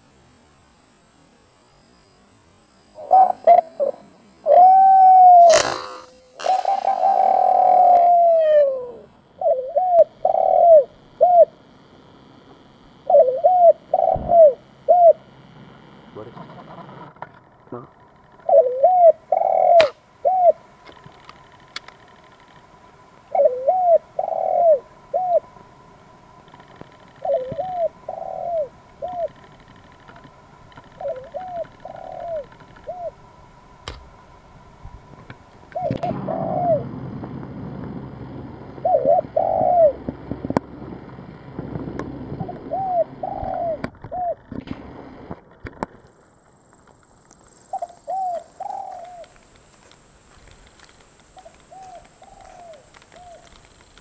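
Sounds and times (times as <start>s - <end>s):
doves cooing: 2.9s - 11.7s, 12.9s - 15.4s, 17.8s - 21.1s, 23.2s - 25.7s, 26.6s - 33.3s, 35.6s - 37.0s, 38.5s - 40.4s, 41.7s - 44.5s, 47.6s - 54.0s.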